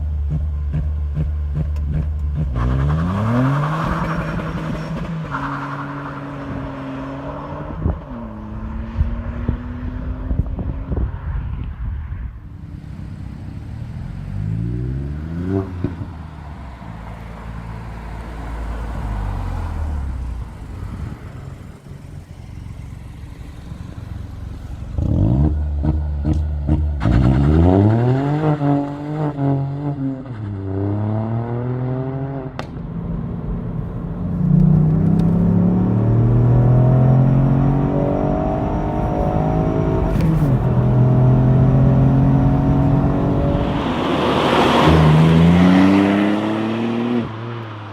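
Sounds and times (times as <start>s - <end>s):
car engine revving: 18.4s - 32.7s, 34.1s - 47.9s.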